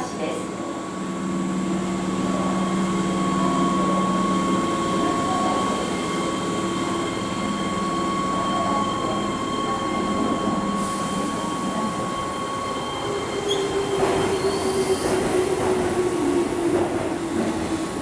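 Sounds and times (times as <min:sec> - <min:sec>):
electric train rumbling: 0:00.0 - 0:18.0.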